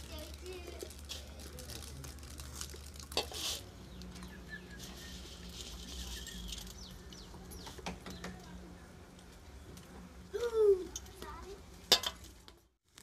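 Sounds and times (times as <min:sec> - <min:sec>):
rustling: 0:00.0 - 0:07.9
small birds chirping: 0:03.6 - 0:08.6.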